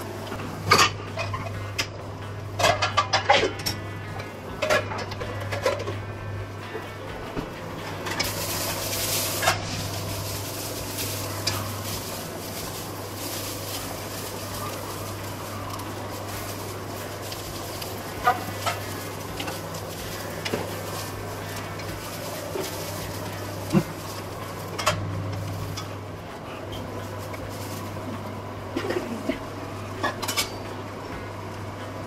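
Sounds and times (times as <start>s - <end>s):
onions sizzling in a pan: 8.2s - 28.8s.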